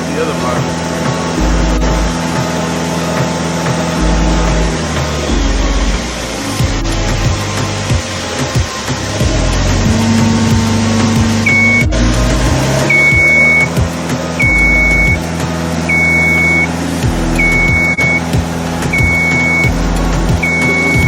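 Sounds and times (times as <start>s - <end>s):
lift engine running: 0.0s - 21.0s
high motion alarm beeps: 11.4s - 12.0s, 12.9s - 13.7s, 14.4s - 15.2s, 15.9s - 16.7s, 17.4s - 18.3s, 18.9s - 19.8s, 20.4s - 21.0s.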